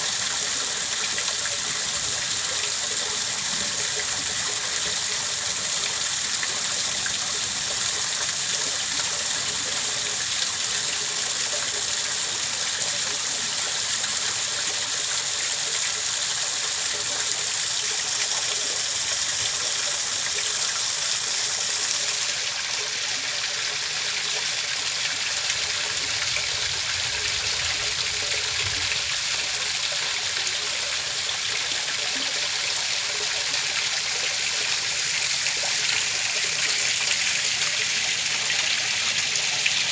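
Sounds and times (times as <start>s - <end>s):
running water trickling: 0.0s - 39.9s.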